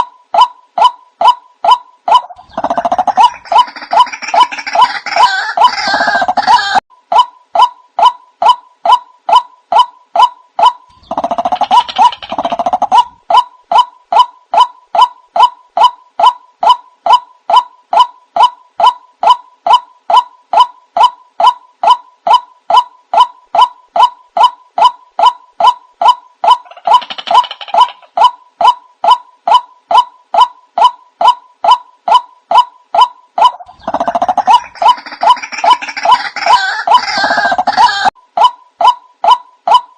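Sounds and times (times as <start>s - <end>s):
waterhen calling: 33.4s - 38.2s.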